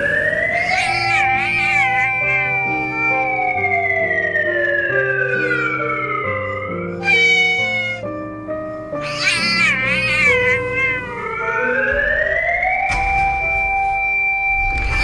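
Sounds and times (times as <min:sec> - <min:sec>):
background music: 0:00.0 - 0:15.0
cat meowing and wailing: 0:00.2 - 0:03.7, 0:04.6 - 0:08.2, 0:08.9 - 0:12.0, 0:14.8 - 0:15.0.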